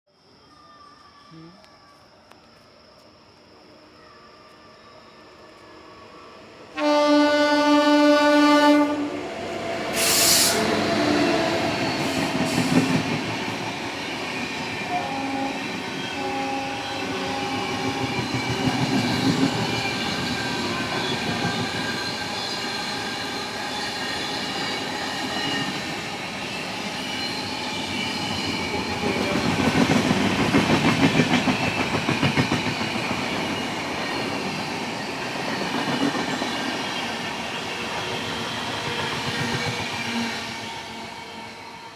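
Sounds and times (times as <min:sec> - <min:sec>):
train rumbling past: 0:05.0 - 0:41.9
train horn blast: 0:06.8 - 0:09.2, 0:14.9 - 0:18.0.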